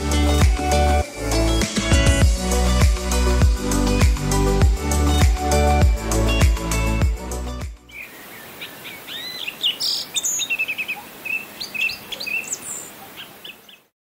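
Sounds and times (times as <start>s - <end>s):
music: 0.0s - 7.9s
small birds chirping and singing: 7.8s - 14.0s
faint steady hiss: 7.9s - 13.9s.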